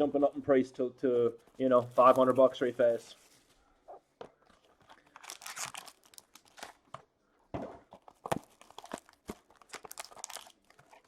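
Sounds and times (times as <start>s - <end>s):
packaging tearing and crinkling: 4.7s - 6.9s, 8.0s - 11.0s.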